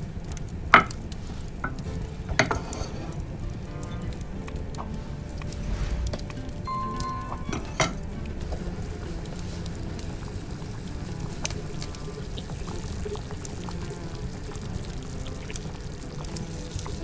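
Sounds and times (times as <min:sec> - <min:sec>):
background music: 0:00.0 - 0:17.0
liquid pouring: 0:05.1 - 0:17.0.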